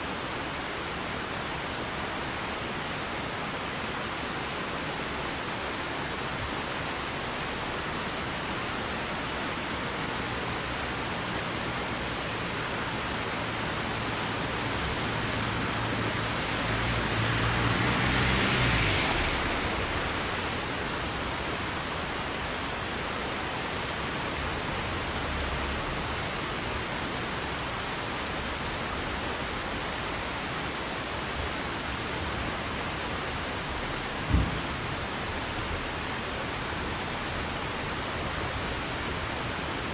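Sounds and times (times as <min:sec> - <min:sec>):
heavy rain falling: 0:00.0 - 0:39.9
hiss with low hum: 0:00.0 - 0:39.9.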